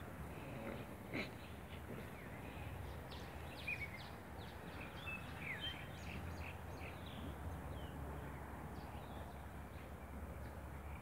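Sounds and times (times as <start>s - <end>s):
small birds chirping: 0.4s - 8.0s.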